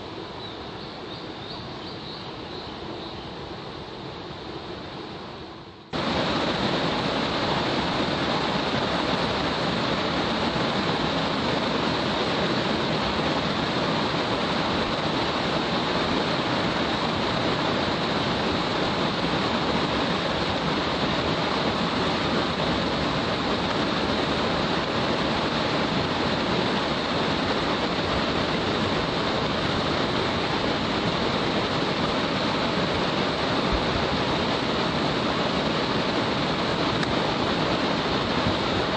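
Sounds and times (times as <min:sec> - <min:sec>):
stream rushing over cascades: 0:00.0 - 0:38.9.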